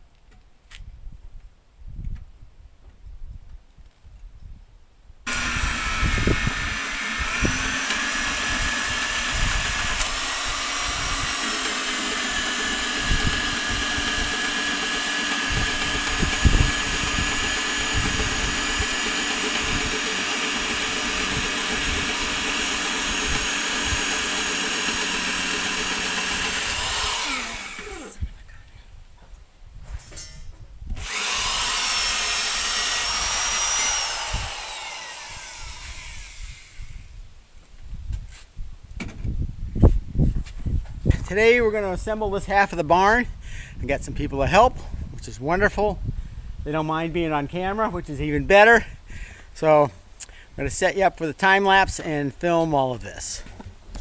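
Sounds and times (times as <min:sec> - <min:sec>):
electric drill running: 0:05.3 - 0:28.3, 0:30.9 - 0:37.2.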